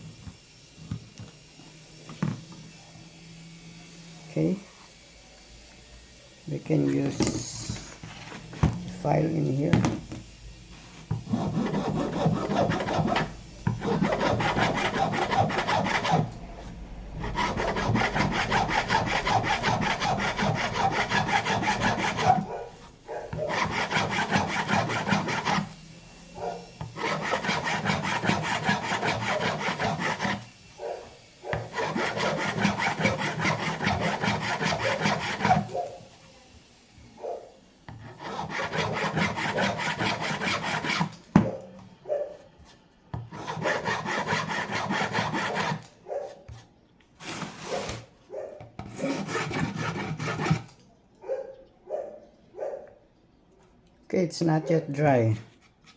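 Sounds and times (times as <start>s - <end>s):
file rasping on wood: 11.0s - 25.8s, 26.8s - 30.9s, 31.5s - 36.2s, 37.9s - 41.2s, 43.2s - 45.9s, 48.8s - 50.7s.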